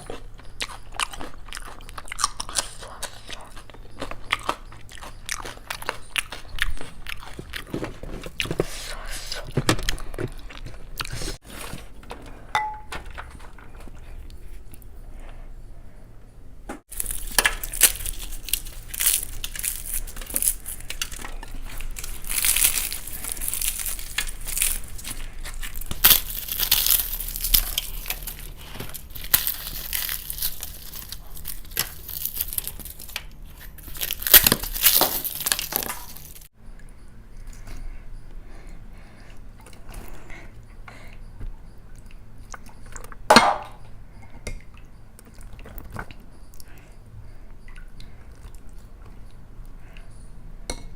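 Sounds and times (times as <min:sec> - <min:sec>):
crunching fried food: 0:00.0 - 0:12.1, 0:16.9 - 0:36.5.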